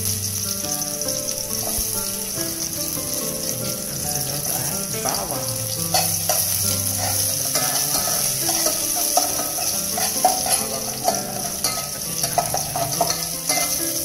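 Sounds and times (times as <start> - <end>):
onions sizzling in oil: 0.0 - 14.0
metal spoon scraping a pot: 5.0 - 14.0.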